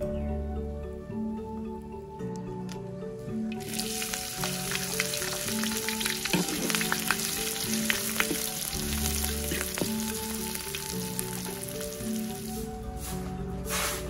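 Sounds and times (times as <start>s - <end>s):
soft background music: 0.0s - 14.0s
vegetables sizzling in hot oil: 3.6s - 12.6s.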